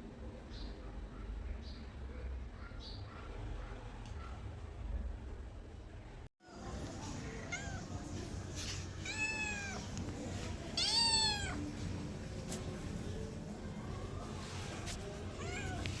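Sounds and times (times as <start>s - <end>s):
cat meowing: 7.4s - 8.0s, 9.0s - 9.9s, 10.7s - 11.7s, 15.3s - 16.0s.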